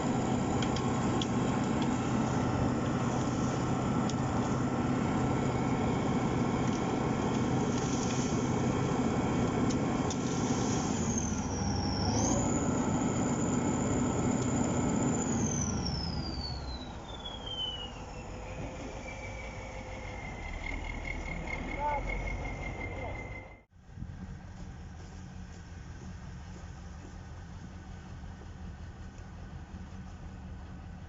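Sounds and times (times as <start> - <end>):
high whine: 0.0 - 23.7
tractor diesel engine droning: 0.0 - 23.7.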